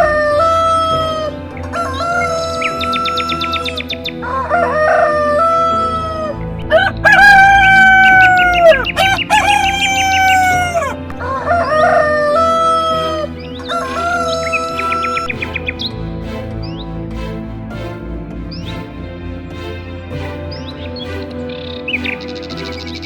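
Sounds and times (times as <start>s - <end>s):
roosters crowing: 0.0s - 15.4s.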